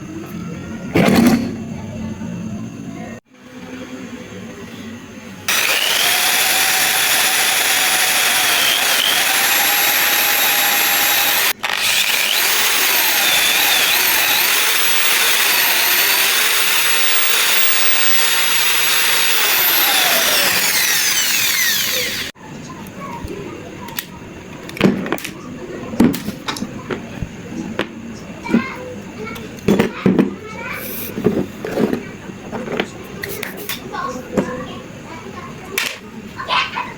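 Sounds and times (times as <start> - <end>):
electric power tool whining: 5.5 - 22.4.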